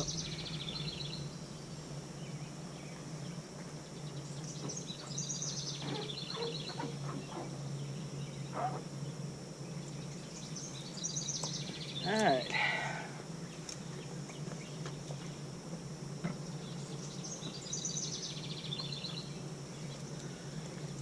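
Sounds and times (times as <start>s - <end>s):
low outdoor background hum: 0.0s - 21.0s
songbird singing: 0.0s - 21.0s.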